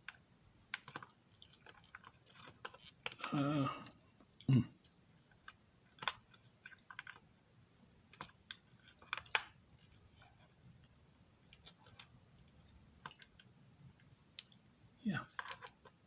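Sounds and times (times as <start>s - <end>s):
small plastic parts clicking: 0.0s - 3.2s, 4.8s - 7.3s, 8.1s - 10.0s, 15.2s - 16.0s.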